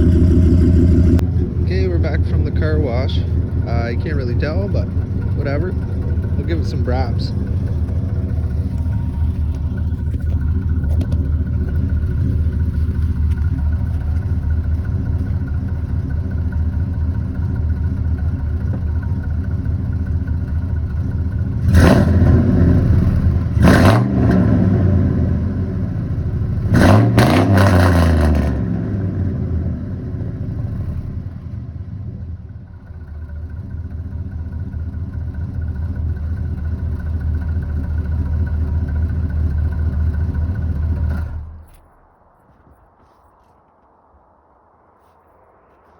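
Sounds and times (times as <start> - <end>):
truck engine idling: 0.0 - 26.7, 29.1 - 42.5
engine revving: 0.0 - 31.5.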